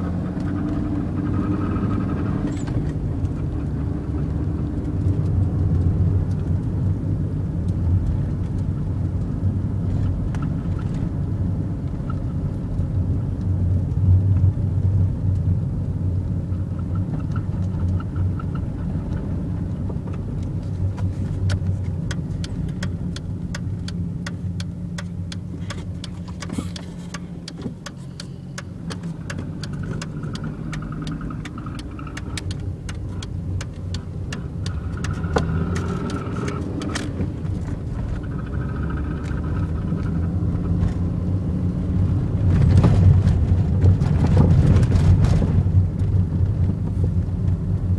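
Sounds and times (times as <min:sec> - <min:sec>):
car engine running: 0:00.0 - 0:47.9
rapid engine ticking: 0:16.5 - 0:41.0.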